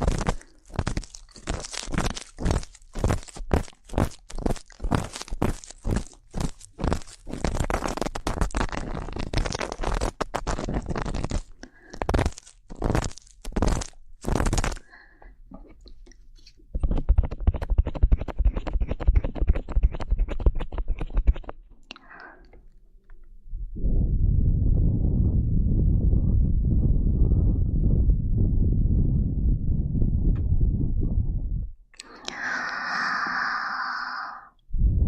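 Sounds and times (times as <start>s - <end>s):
crunchy scraping on microphone: 0.0s - 14.9s, 16.4s - 21.6s.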